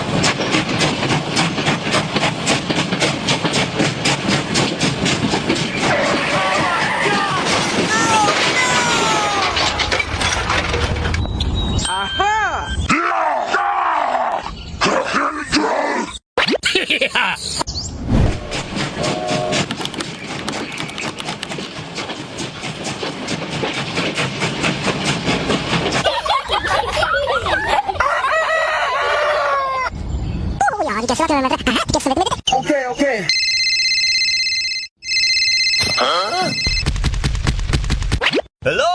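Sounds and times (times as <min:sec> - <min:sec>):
train clickety-clack: 0:00.0 - 0:11.2, 0:18.7 - 0:27.7
low train rumble: 0:17.9 - 0:28.0.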